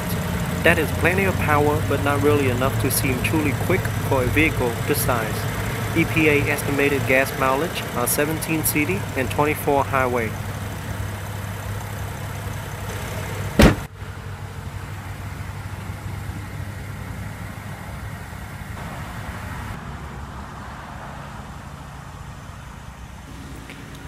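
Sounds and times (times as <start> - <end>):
car engine idling: 0.0 - 24.0
loud thump: 13.6 - 13.9.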